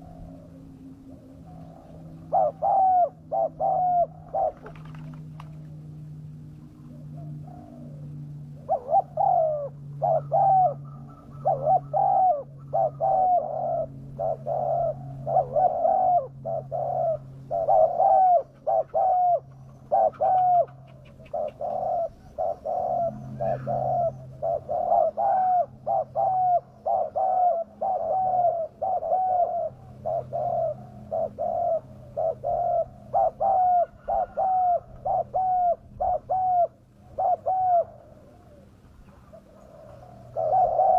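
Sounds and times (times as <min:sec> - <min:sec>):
dove cooing: 0:00.0 - 0:40.9
faint low hum: 0:00.0 - 0:40.9.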